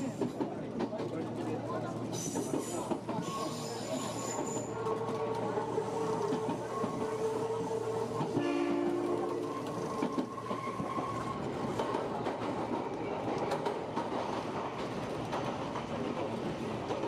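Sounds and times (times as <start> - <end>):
two-note train horn: 8.3 - 9.5.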